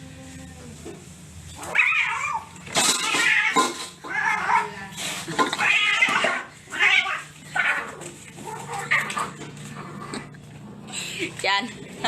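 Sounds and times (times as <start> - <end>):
cats yowling: 1.6 - 4.8, 5.6 - 9.5.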